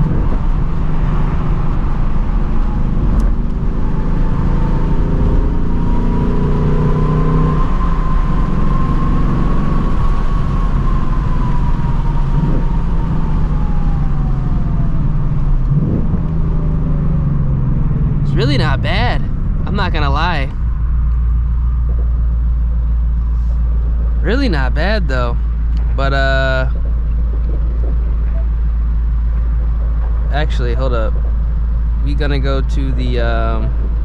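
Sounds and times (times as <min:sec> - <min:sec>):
car engine cruising: 0:00.0 - 0:34.0
faint high whine: 0:18.2 - 0:29.0.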